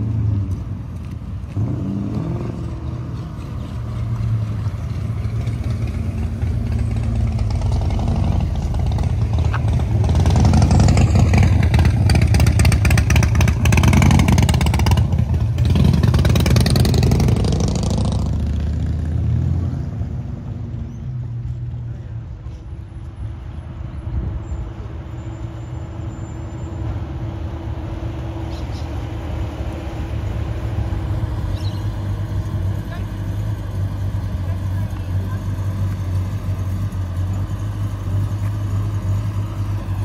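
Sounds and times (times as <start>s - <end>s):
car engine revving: 0.0s - 20.7s.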